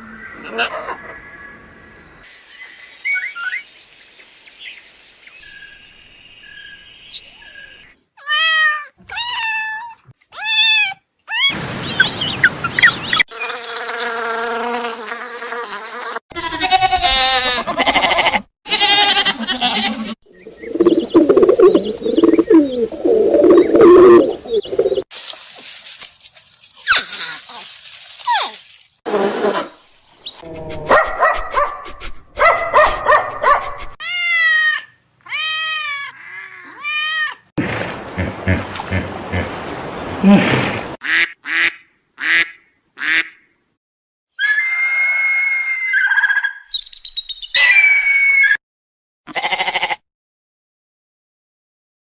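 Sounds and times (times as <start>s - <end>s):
animal cries rising and falling: 8.2s - 11.6s, 34.0s - 37.5s, 44.3s - 46.6s, 47.5s - 48.6s, 49.3s - 50.0s.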